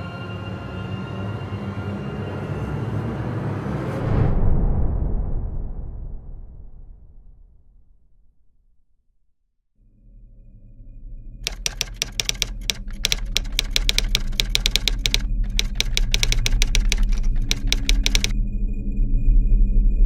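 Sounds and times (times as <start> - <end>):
rapid sharp clicks: 11.4 - 18.3.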